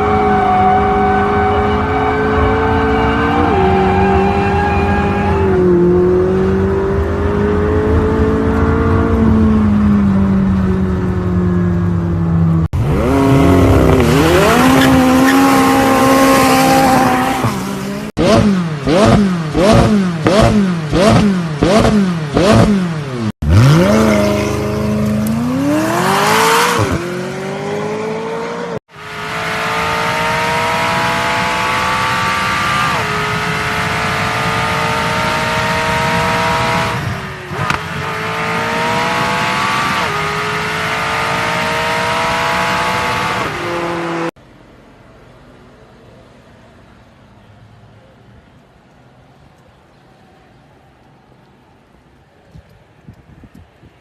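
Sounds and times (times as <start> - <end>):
car engine revving: 12.6 - 44.4.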